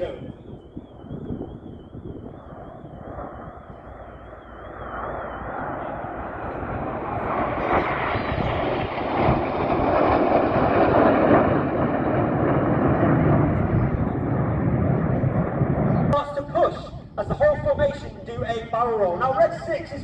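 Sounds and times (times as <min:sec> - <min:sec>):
jet aircraft noise: 0:00.0 - 0:20.0.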